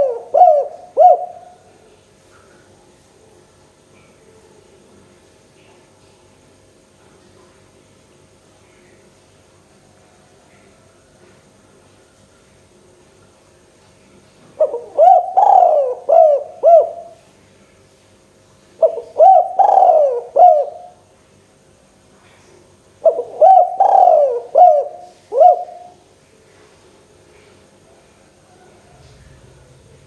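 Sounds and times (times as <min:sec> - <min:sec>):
dove cooing: 0:00.0 - 0:01.8, 0:14.6 - 0:17.2, 0:18.8 - 0:21.0, 0:23.0 - 0:26.0.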